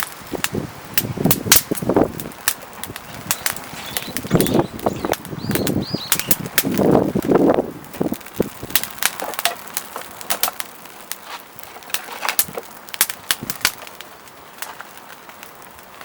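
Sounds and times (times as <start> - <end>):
wind buffeting microphone: 0.0 - 9.2, 12.3 - 14.0
fire pops: 0.0 - 16.0
wood fire crackling: 0.0 - 16.0.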